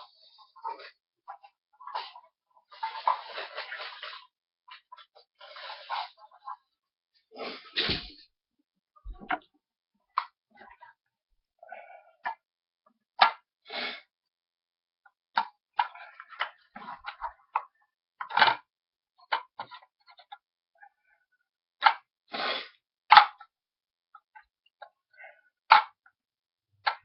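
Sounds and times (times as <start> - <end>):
cans scraping: 1.9 - 4.3.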